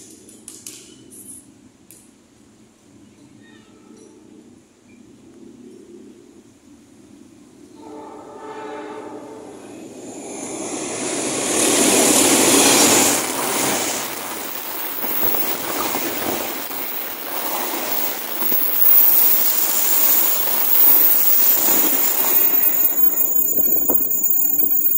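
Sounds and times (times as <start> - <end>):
train passing at speed: 7.1 - 24.9.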